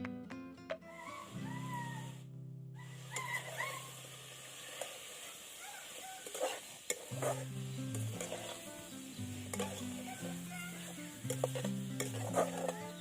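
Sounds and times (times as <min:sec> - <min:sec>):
food sizzling in hot oil: 0:00.9 - 0:13.0
utensil scraping pan: 0:06.0 - 0:13.0
metal clicks on pan: 0:09.5 - 0:10.0, 0:11.2 - 0:12.8.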